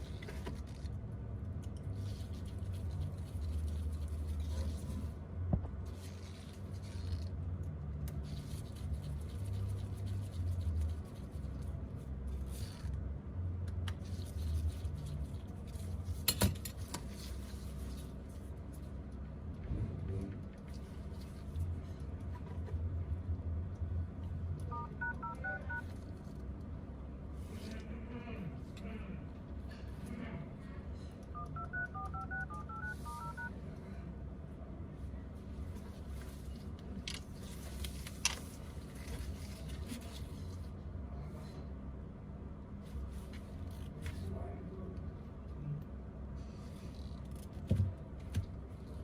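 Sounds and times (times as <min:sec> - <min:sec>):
low uneven hum: 0:00.0 - 0:49.0
phone keypad dialing tones: 0:24.7 - 0:25.9, 0:31.4 - 0:33.6.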